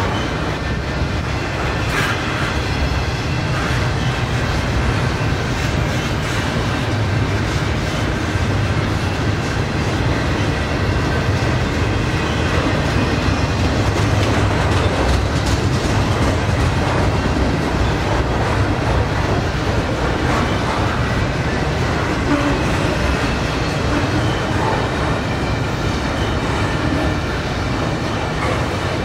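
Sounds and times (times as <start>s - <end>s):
train wheels rumbling on rails: 0.0s - 29.0s
wheels clicking over rail joints: 10.5s - 29.0s.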